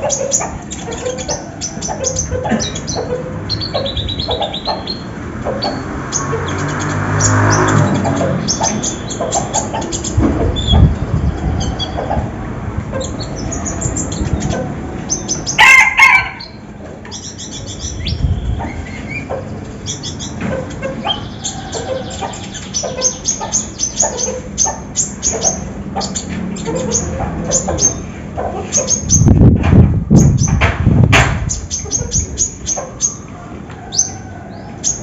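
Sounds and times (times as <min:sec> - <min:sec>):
loud fowl-like call: 0:15.5 - 0:16.7.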